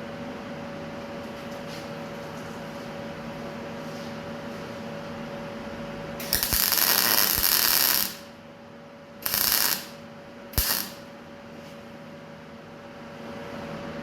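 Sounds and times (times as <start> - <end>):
workshop hum: 0.0 - 14.0
mig welder crackling: 6.2 - 8.4, 9.2 - 10.0, 10.6 - 11.1.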